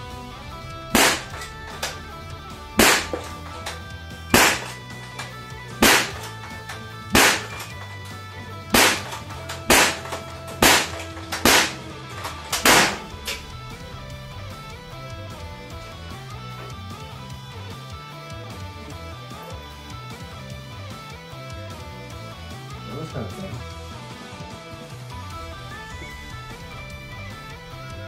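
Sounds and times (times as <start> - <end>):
guitar music: 0.0 - 28.0
air rifle shots cracking: 0.3 - 16.8.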